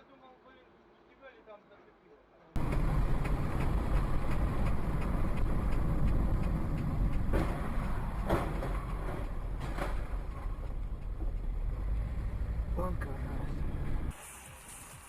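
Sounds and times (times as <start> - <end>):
vehicles whooshing past: 2.6 - 14.5
car road and engine rumble: 2.6 - 15.0.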